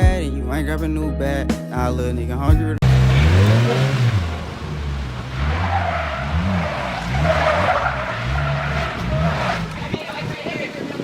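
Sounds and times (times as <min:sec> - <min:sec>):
car engine revving: 0:02.8 - 0:10.2
tyres squealing: 0:02.9 - 0:10.8.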